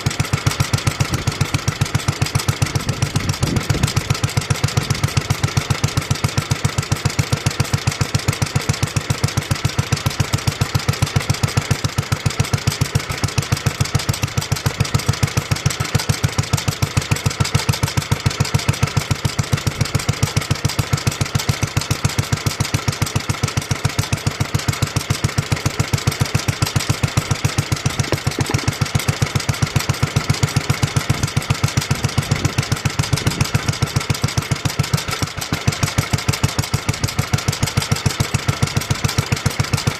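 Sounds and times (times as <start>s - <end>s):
stationary engine running: 25.2s - 39.9s.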